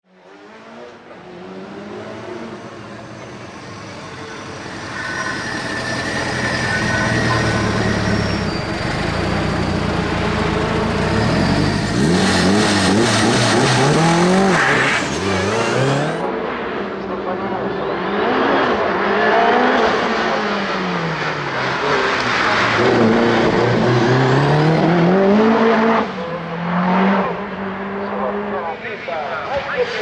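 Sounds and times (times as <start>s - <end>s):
turbocharged car engine revving: 0.3s - 16.7s, 18.0s - 28.5s
engine crackling: 4.1s - 16.3s.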